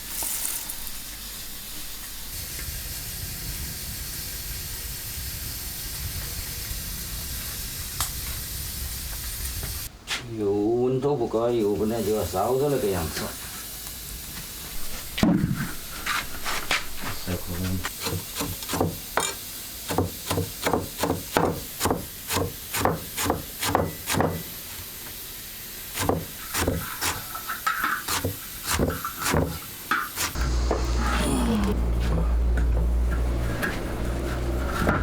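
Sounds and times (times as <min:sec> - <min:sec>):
faint hiss: 0:00.0 - 0:17.9
steady low hum: 0:30.4 - 0:35.0.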